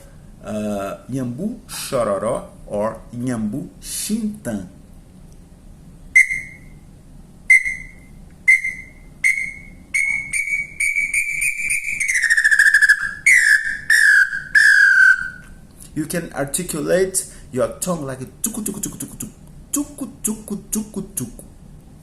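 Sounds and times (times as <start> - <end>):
wooden birdcall whistling: 6.2 - 6.8, 7.5 - 15.6.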